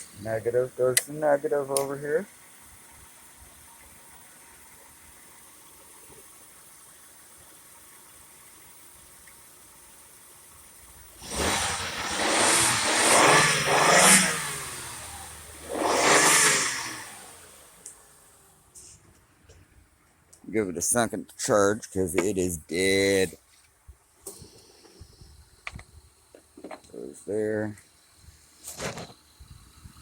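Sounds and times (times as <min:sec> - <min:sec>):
car engine revving: 0:11.0 - 0:19.0.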